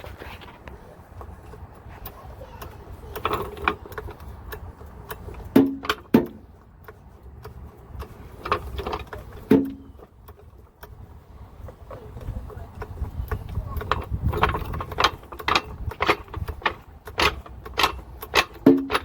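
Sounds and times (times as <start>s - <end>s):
metal hand tools clanking: 12.7s - 19.0s.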